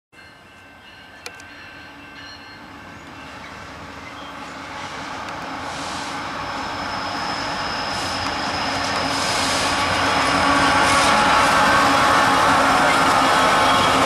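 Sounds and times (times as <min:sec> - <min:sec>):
freight train rumbling: 0:00.2 - 0:14.0
high-pitched whine: 0:05.6 - 0:11.8.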